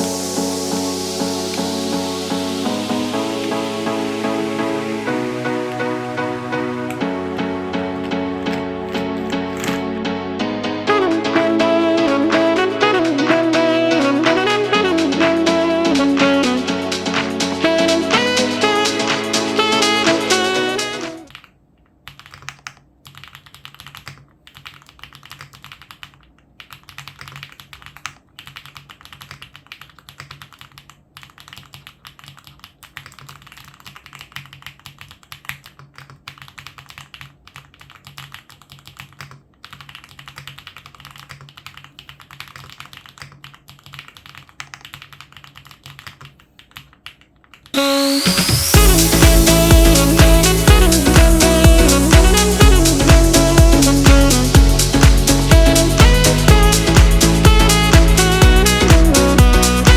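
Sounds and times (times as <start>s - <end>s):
fast mechanical keyboard typing: 7.9s - 10.0s, 21.3s - 47.7s.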